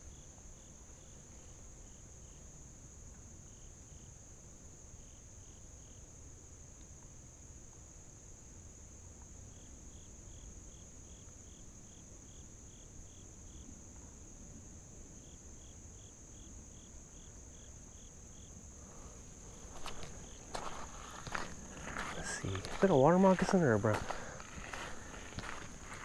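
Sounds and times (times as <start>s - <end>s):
high insect drone: 14.6s - 26.0s.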